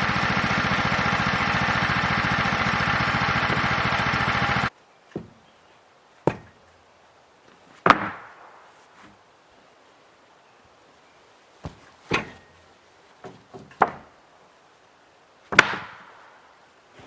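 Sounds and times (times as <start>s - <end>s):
sharp blows striking wood: 2.7s - 5.4s, 6.2s - 6.6s, 7.8s - 8.7s, 13.2s - 14.1s, 15.5s - 16.4s.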